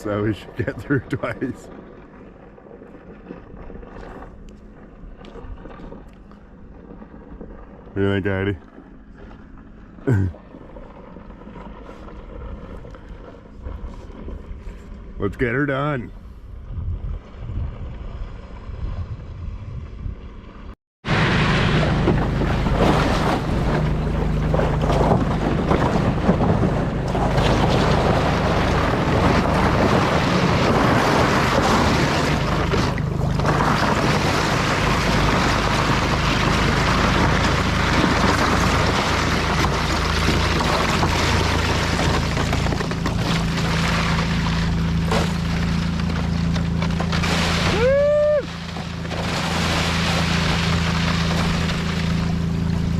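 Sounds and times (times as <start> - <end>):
outboard motor running: 0.0 - 16.3, 17.2 - 52.9
wind buffeting microphone: 16.1 - 42.3
water rushing past hull: 21.0 - 52.9.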